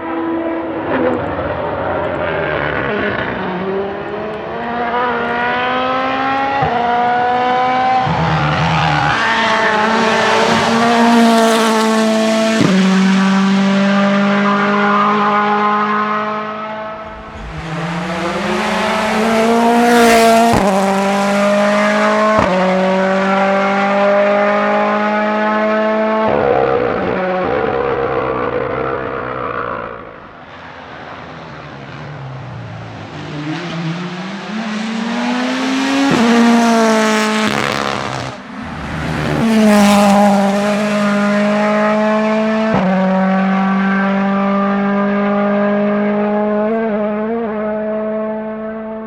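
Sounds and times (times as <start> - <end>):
rally car accelerating past: 0.0 - 49.0.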